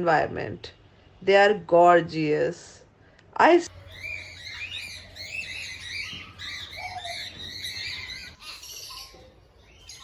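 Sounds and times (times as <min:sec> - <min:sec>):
birds chirping and chattering: 0:03.7 - 0:10.0
low bird call: 0:03.7 - 0:10.0.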